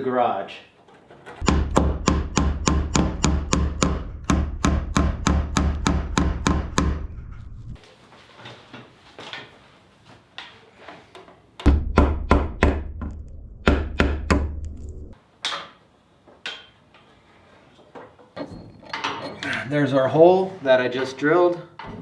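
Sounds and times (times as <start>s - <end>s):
knocks and clicks: 1.4s - 7.8s, 11.6s - 15.2s.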